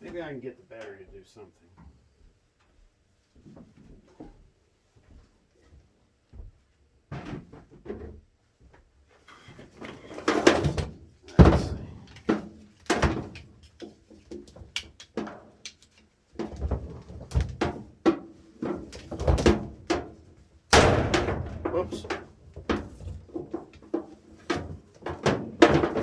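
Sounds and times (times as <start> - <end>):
tools knocking and rattling: 9.8 - 26.0.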